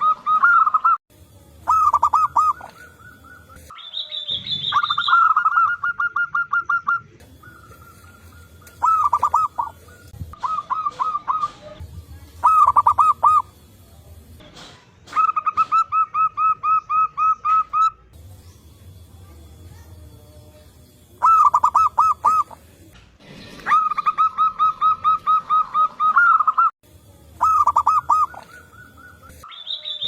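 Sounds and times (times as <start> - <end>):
high-pitched bird call: 0.0 - 1.0, 1.6 - 11.8, 12.4 - 13.6, 15.1 - 18.1, 21.2 - 22.6, 23.6 - 26.7, 27.4 - 30.0
doves cooing: 1.7 - 3.7, 4.3 - 13.6, 21.2 - 22.8, 23.6 - 26.7, 27.4 - 29.4.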